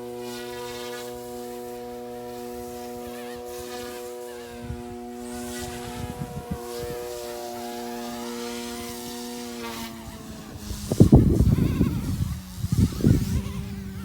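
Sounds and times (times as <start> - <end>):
rc helicopter motor whine: 0.0 - 14.0
wind buffeting microphone: 4.4 - 14.0.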